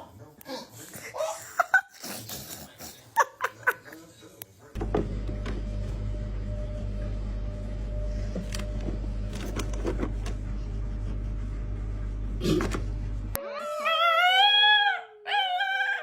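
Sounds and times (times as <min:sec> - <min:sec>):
low mechanical hum: 0:04.8 - 0:13.4.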